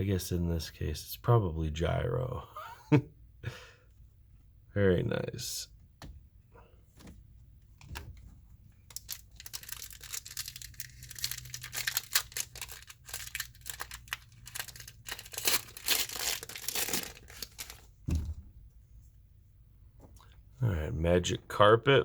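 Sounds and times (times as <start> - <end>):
wrapper tearing and crinkling: 8.9 - 17.9.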